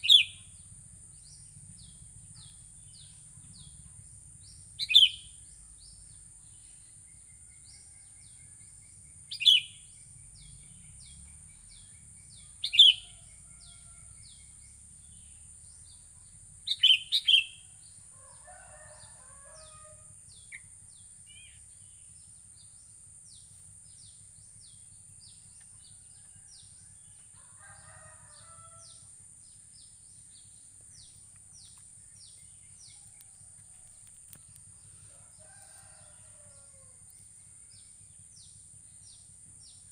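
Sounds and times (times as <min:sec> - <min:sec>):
bulbul calling: 0:00.0 - 0:00.6, 0:04.8 - 0:05.4, 0:09.3 - 0:11.0, 0:12.6 - 0:13.2, 0:16.6 - 0:17.8.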